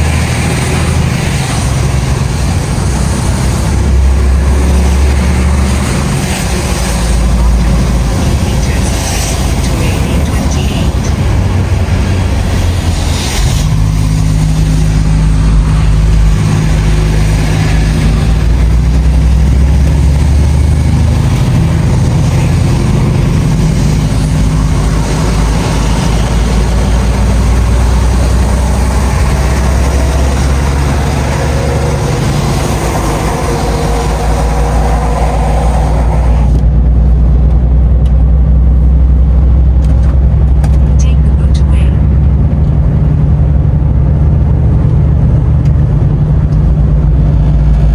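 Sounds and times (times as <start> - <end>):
truck diesel engine driving: 0.0 - 47.9.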